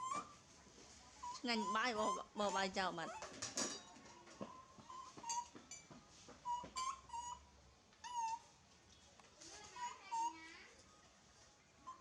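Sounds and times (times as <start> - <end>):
baby monkey whimpering: 1.2 - 3.3, 6.4 - 8.5, 9.8 - 10.5.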